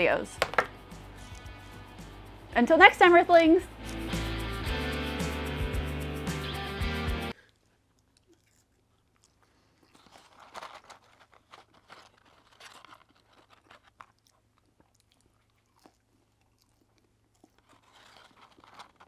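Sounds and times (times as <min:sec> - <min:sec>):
chewing fries: 0:07.3 - 0:19.0.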